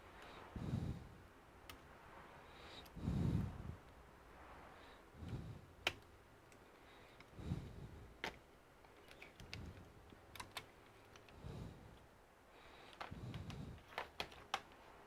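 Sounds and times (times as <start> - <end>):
clicks and taps of laptop parts: 5.8 - 6.6, 8.2 - 11.4, 12.9 - 14.8.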